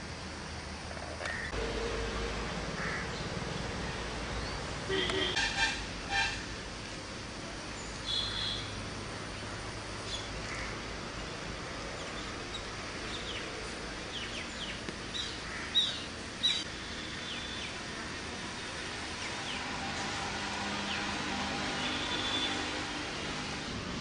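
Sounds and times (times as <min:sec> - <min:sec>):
steady outdoor hiss: 0:00.0 - 0:24.0
birds chirping: 0:07.7 - 0:17.9.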